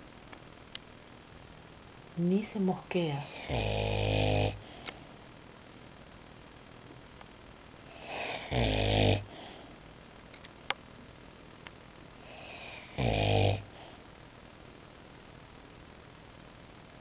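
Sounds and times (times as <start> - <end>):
dog snoring: 3.2 - 4.8, 7.9 - 9.6, 12.2 - 14.0.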